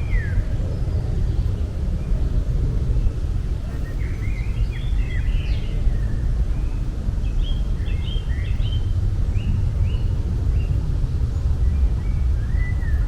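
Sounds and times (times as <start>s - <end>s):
small birds chirping: 3.1s - 13.0s.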